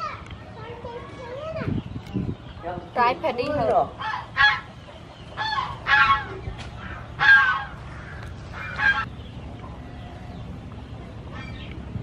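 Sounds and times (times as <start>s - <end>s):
bird honking calls: 2.6s - 10.6s, 11.2s - 11.8s.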